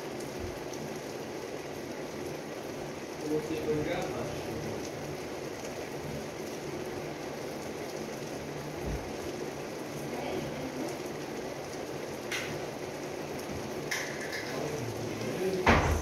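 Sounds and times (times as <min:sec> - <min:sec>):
light rain on the street: 0:00.0 - 0:16.0
dull thump: 0:15.6 - 0:16.0.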